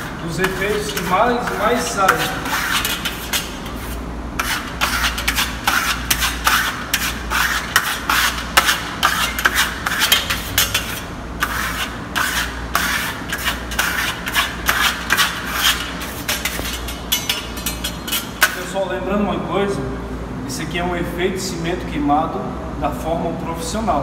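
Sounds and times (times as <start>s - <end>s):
trowel scraping on a wall: 0.0s - 18.6s.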